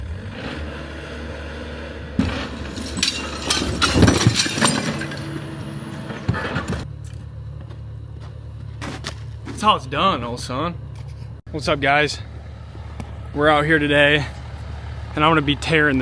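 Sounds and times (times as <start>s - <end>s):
excavator engine running: 0.0s - 16.0s
wall crashing down: 2.2s - 5.5s
debris breaking and clinking: 2.2s - 6.8s.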